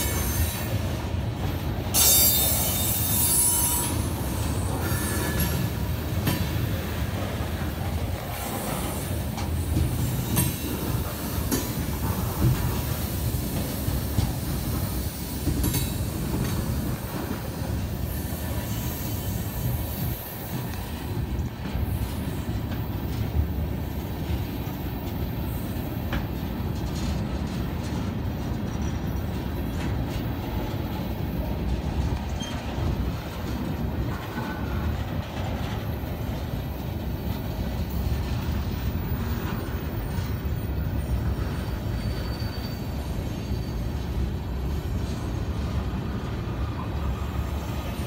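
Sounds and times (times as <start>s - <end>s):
steel wheels rumbling on rails: 0.0s - 48.0s
wheels clicking over rail joints: 3.8s - 18.6s, 19.6s - 42.3s.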